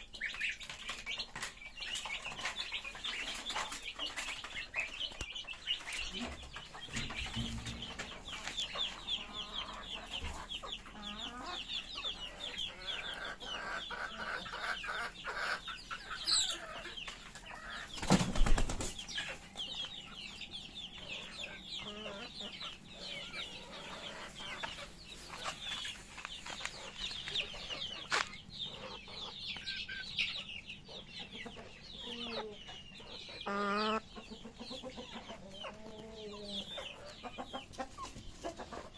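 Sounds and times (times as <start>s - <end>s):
chickens cheeping and clucking: 0.0s - 38.9s.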